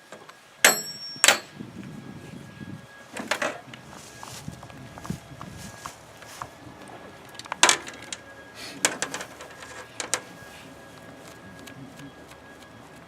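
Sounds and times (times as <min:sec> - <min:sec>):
hard objects clicking and clattering: 0:08.8 - 0:10.3.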